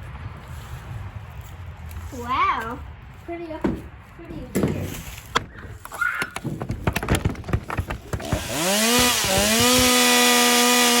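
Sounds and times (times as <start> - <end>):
clattering knocks: 6.4 - 9.8
chainsaw engine revving: 8.1 - 11.0.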